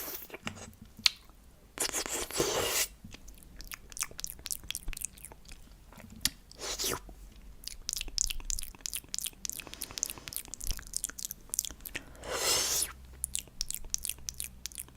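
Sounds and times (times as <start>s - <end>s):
sticky wet mouth clicks: 7.6s - 14.9s.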